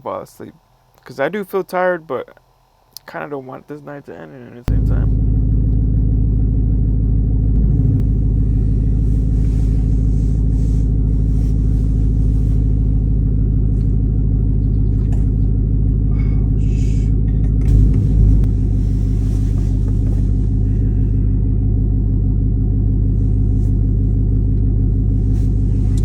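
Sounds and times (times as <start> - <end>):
truck engine hum: 0.0 - 26.0
truck driving on road: 4.7 - 26.0
truck bumps: 17.1 - 21.1.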